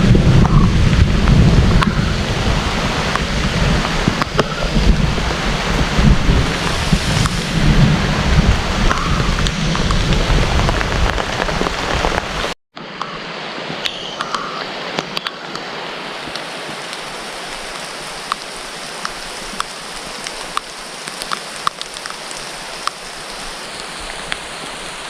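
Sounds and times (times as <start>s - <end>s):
deep rumble: 0.0s - 12.6s
raindrops ticking on surfaces: 0.0s - 12.6s, 13.8s - 25.0s
heavy rain pouring: 0.0s - 25.0s.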